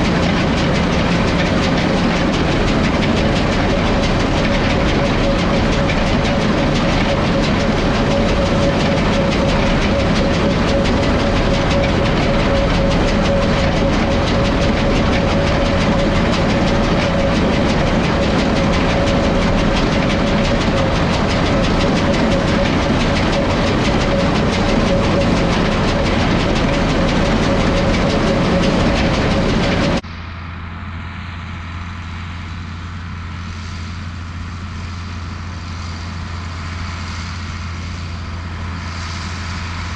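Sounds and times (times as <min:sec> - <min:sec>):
baler mechanical rattle: 0:00.0 - 0:30.0
diesel tractor engine under load: 0:00.0 - 0:39.9
engine hum: 0:00.0 - 0:39.9.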